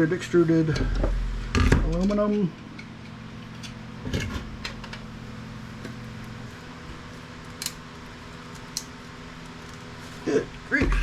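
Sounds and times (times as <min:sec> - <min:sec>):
steady low hum: 0:00.0 - 0:11.0
small parts clicking and tapping: 0:07.4 - 0:09.8.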